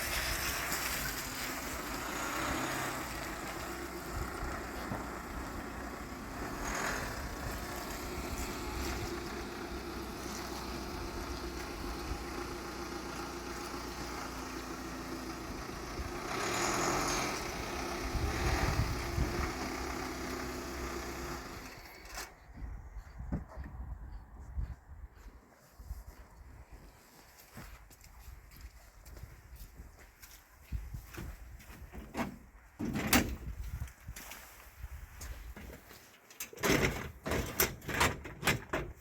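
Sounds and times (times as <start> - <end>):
engine rumbling: 0.0 - 25.1
wind on microphone: 17.9 - 19.8, 22.4 - 26.8.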